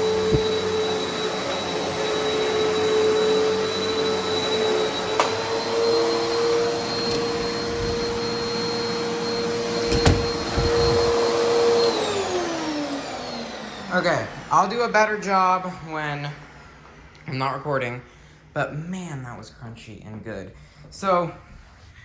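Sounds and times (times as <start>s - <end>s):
vacuum cleaner on carpet: 0.0s - 17.5s.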